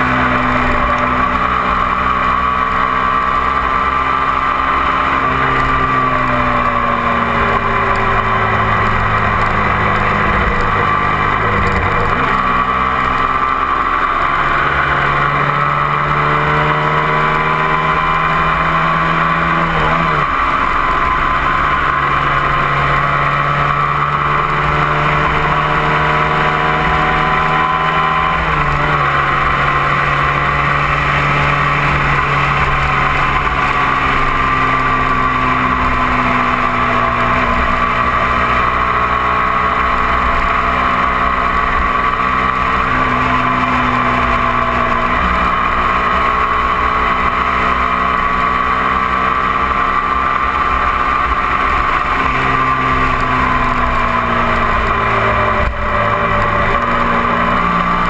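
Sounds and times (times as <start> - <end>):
motorcycle engine under load: 0.0 - 58.0
wind and road noise: 0.0 - 58.0.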